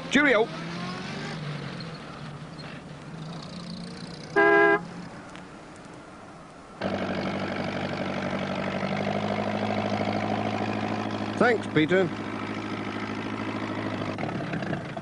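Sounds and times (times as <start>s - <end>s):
faint vehicle engine: 0.0s - 15.0s
short horn toot: 4.4s - 4.9s
loud engine running: 6.8s - 15.0s.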